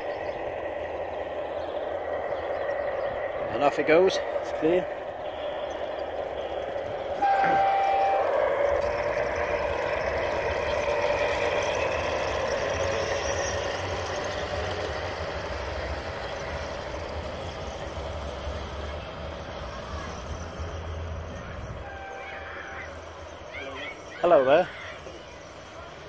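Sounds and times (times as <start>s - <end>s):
model train running on track: 0.0s - 26.0s
short high tone: 7.2s - 8.4s.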